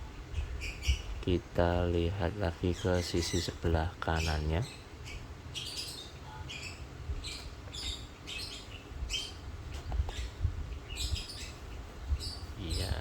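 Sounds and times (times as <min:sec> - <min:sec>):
small bird chirping: 0:00.0 - 0:01.2, 0:02.7 - 0:13.0.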